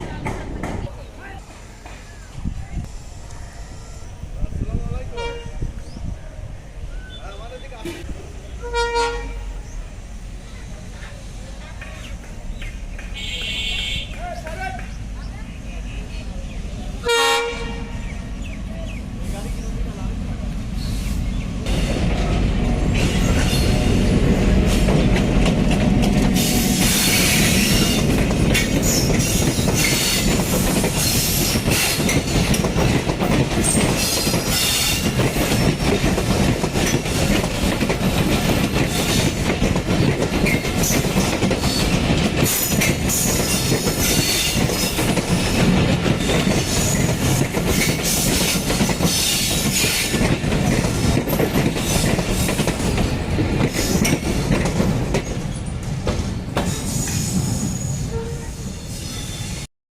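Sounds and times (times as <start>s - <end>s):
train rumbling on rails: 0.0s - 59.7s
wheels clattering over rail joints: 24.6s - 57.9s
metallic wheel screech: 56.9s - 59.7s.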